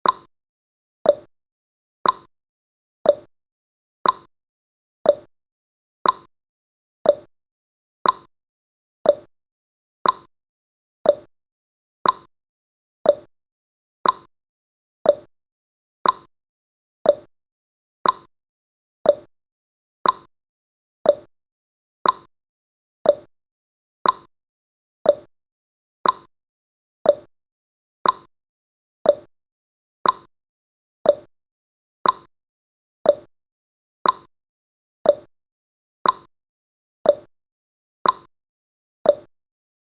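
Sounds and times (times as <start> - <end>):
timer ticking: 0.0 - 0.3, 1.0 - 1.3, 2.0 - 2.3, 3.0 - 3.3, 4.0 - 4.3, 5.1 - 5.3, 6.0 - 6.3, 7.0 - 7.3, 8.0 - 8.3, 9.0 - 9.3, 10.0 - 10.3, 11.0 - 11.3, 12.0 - 12.3, 13.0 - 13.3, 14.0 - 14.3, 15.0 - 15.3, 16.0 - 16.3, 17.0 - 17.3, 18.0 - 18.3, 19.0 - 19.3, 20.0 - 20.3, 21.0 - 21.3, 22.0 - 22.3, 23.0 - 23.3, 24.0 - 24.3, 25.0 - 25.3, 26.0 - 26.3, 27.0 - 27.3, 28.0 - 28.3, 29.0 - 29.3, 30.0 - 30.3, 31.0 - 31.3, 32.0 - 32.3, 33.0 - 33.3, 34.0 - 34.3, 35.0 - 35.3, 36.0 - 36.3, 37.1 - 37.3, 38.0 - 38.3, 39.1 - 39.3.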